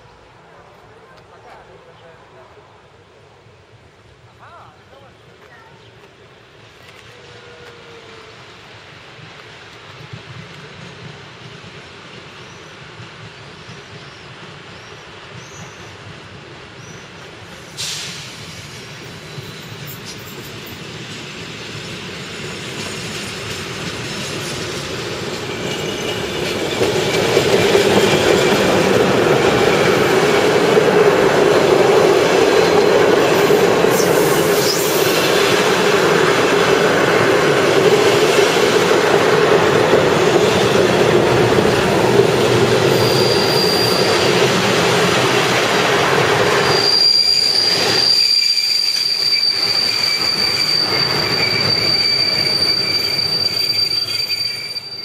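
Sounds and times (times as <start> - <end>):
train wheels rolling on rails: 3.4 - 55.0
high-pitched wheel squeal: 33.3 - 35.6, 42.9 - 44.5, 46.6 - 55.0.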